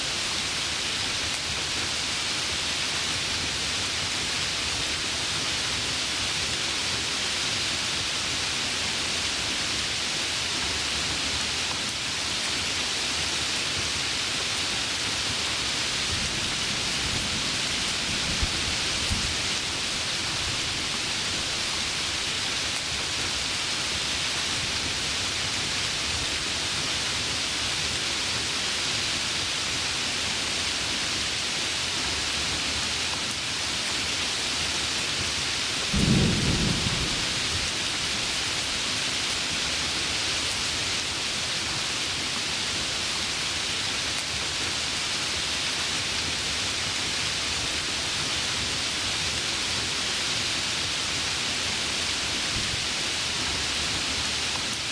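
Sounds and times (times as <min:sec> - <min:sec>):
heavy rain: 0:00.0 - 0:54.9
low thunder clap: 0:35.9 - 0:37.7.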